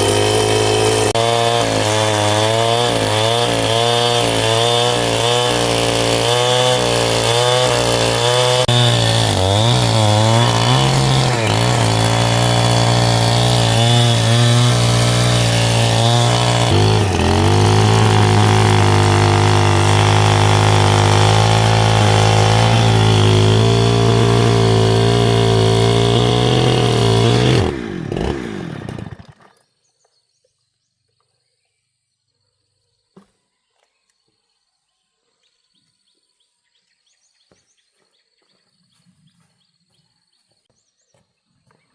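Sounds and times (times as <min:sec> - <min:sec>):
chainsaw engine running: 0:00.0 - 0:29.7.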